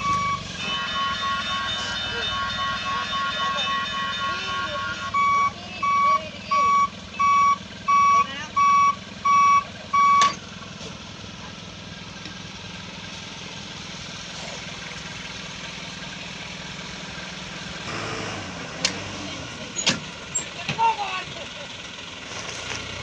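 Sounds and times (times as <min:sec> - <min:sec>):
truck reversing alarm beeping: 0:00.0 - 0:10.7, 0:13.7 - 0:21.8
diesel engine running: 0:00.0 - 0:23.0.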